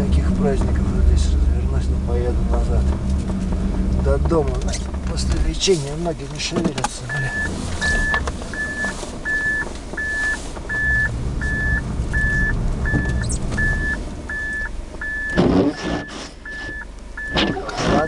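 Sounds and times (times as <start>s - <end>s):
low engine rumble: 0.0s - 18.0s
reversing warning beeps: 7.1s - 18.0s.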